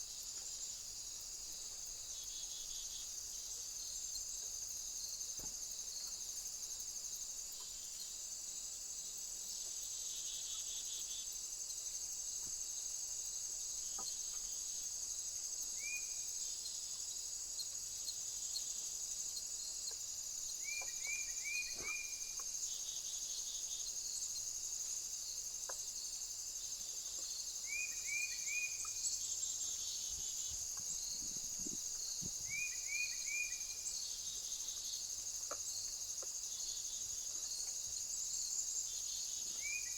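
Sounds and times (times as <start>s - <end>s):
high-pitched insect chorus: 0.0s - 39.9s
small bird chirping: 15.7s - 24.5s, 26.8s - 39.9s.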